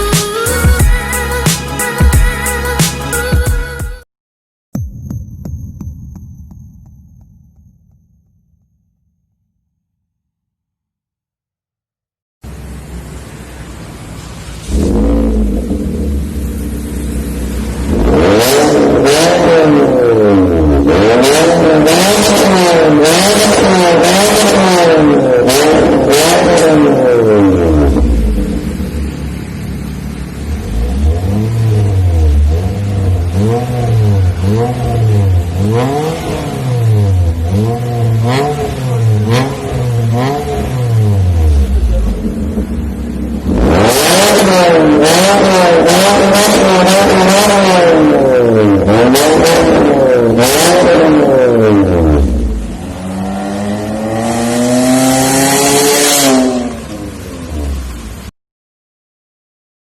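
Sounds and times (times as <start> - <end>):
car engine revving: 12.4 - 58.3
exhaust crackling: 12.4 - 58.3.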